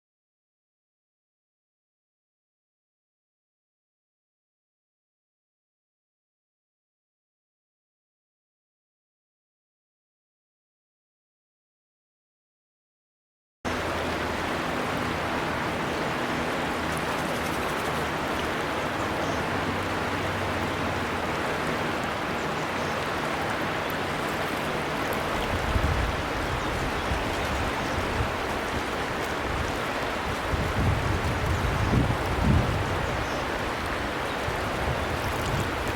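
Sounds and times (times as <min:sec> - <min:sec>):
flowing river water: 0:13.7 - 0:35.9.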